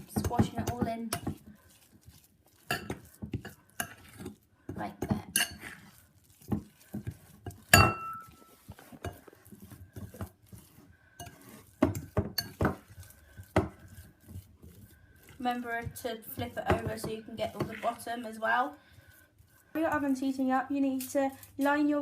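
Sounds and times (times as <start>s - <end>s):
fork scraping a bowl: 0.0s - 22.0s.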